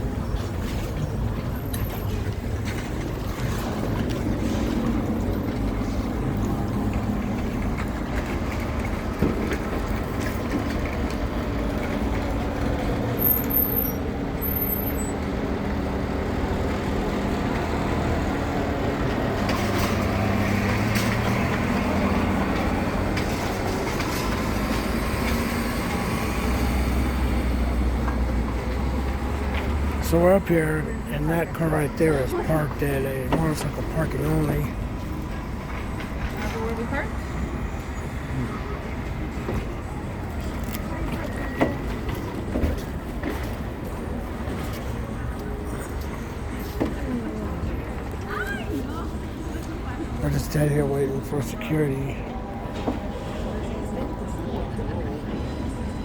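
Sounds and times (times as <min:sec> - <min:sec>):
road noise: 0:00.0 - 0:56.0.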